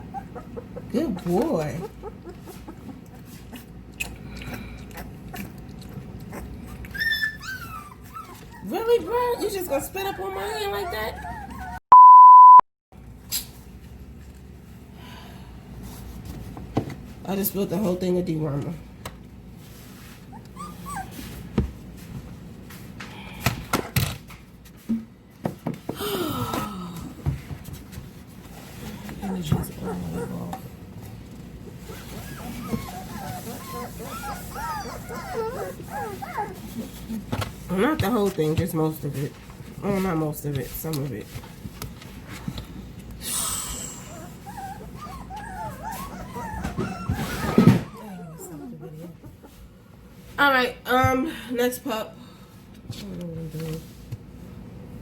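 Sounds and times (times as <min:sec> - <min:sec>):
puppy whimpering: 0:00.0 - 0:03.8, 0:04.4 - 0:11.8, 0:20.2 - 0:21.3, 0:29.2 - 0:30.7, 0:31.8 - 0:37.3, 0:43.8 - 0:49.6.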